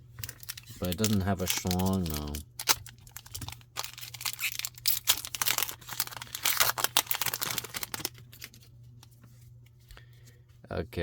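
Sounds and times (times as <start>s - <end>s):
foil pack crinkling and tearing: 0.2s - 8.7s.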